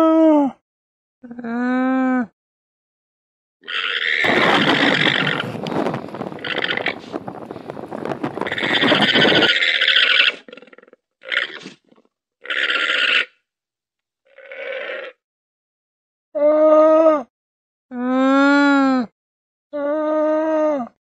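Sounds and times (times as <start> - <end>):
llama calls: 3.7 - 10.5.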